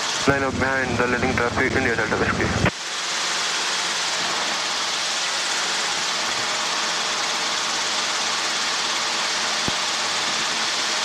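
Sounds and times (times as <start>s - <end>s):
radio static hiss: 0.0s - 3.4s.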